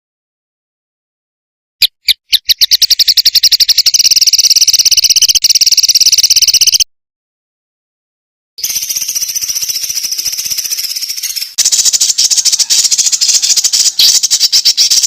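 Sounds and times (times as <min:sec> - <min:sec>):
songbird rapid trill: 0:01.8 - 0:06.9, 0:08.6 - 0:15.0.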